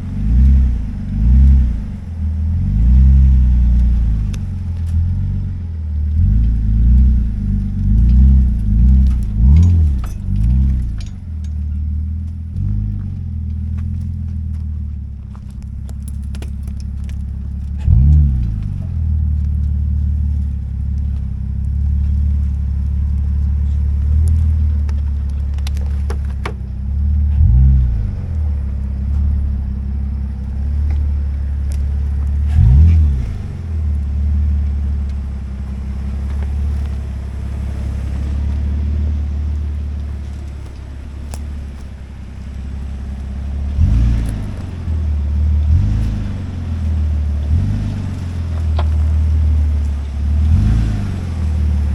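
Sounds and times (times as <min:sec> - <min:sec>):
car engine revving while driving: 0:00.0 - 0:51.9.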